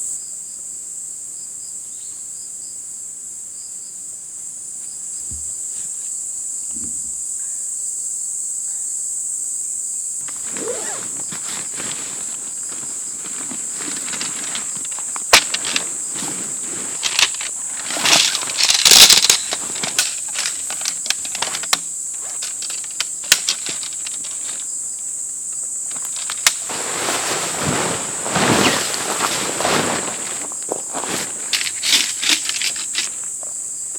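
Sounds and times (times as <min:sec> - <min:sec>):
insect chorus: 0:00.0 - 0:33.9
rustling handling noise: 0:10.2 - 0:33.9.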